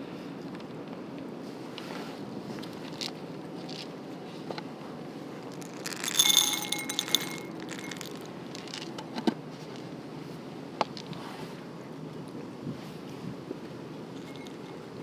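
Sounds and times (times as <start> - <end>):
ringing clinks rattling: 5.6 - 8.8.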